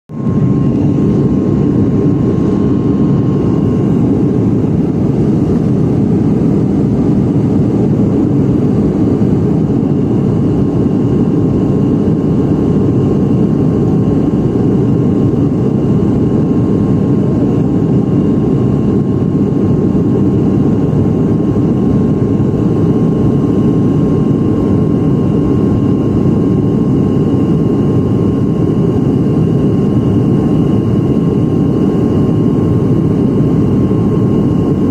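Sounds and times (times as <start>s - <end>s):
airliner engine and airflow noise: 0.1s - 34.9s.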